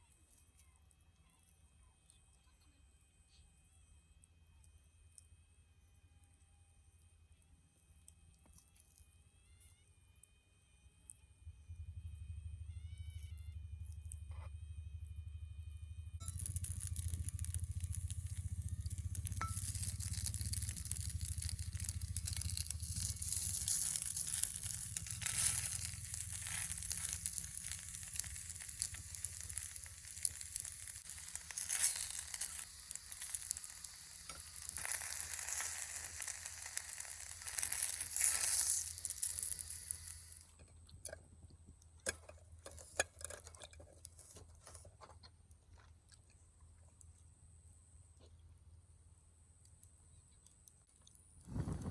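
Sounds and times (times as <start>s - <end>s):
food sizzling in a pan: 16.2s - 40.5s.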